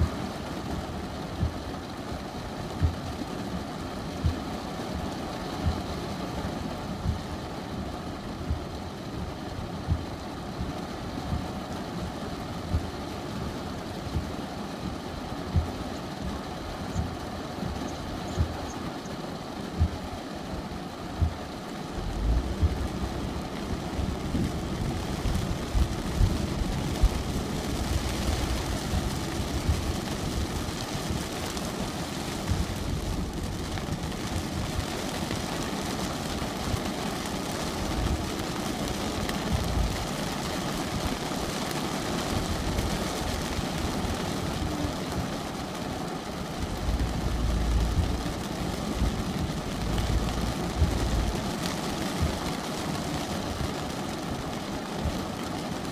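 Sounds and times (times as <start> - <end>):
rain hiss: 0.0 - 55.9
thunder rumbles: 22.0 - 35.4, 39.4 - 40.0, 46.7 - 52.5.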